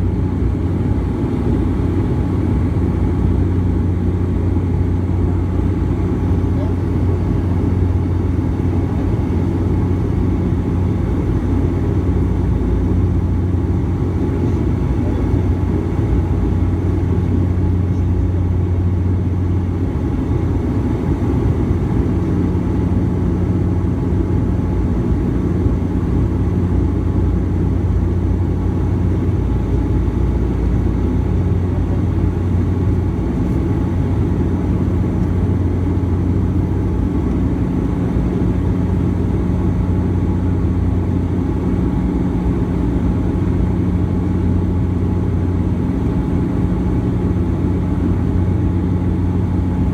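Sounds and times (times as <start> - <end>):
airliner engines droning: 0.0 - 49.9.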